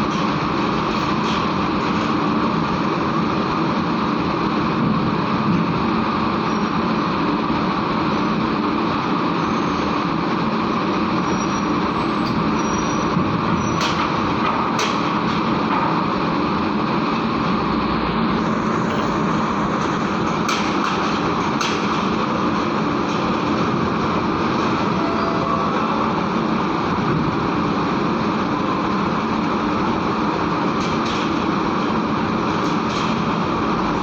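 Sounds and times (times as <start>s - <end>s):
truck diesel engine running: 11.8s - 34.0s.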